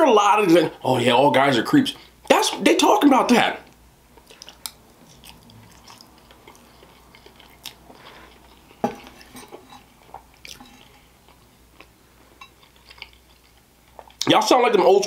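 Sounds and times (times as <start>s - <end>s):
wet chewing: 4.1s - 14.3s.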